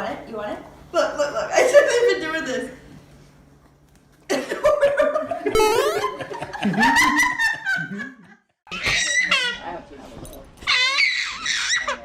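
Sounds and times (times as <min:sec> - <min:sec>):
people laughing: 0:04.3 - 0:08.6.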